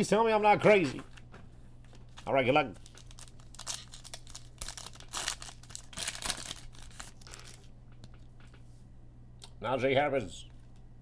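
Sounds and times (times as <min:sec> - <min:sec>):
wrapper tearing and crinkling: 0:02.8 - 0:07.7.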